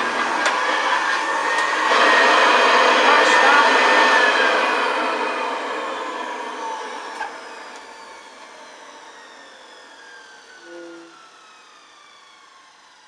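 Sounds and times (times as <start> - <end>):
vacuum cleaner motor winding down: 0.0 - 13.0.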